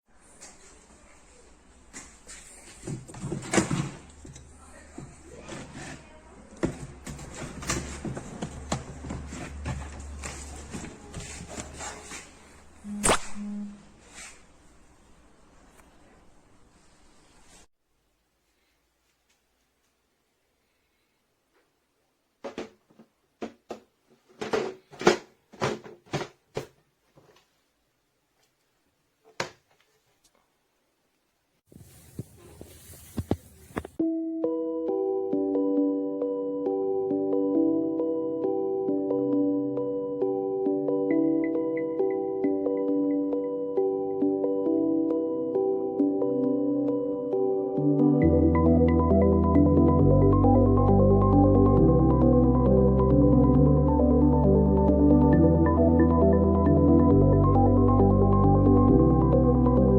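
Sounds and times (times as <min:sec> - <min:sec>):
handling knocks and rubbing: 0:02.0 - 0:12.4, 0:22.4 - 0:27.5, 0:31.7 - 0:34.0.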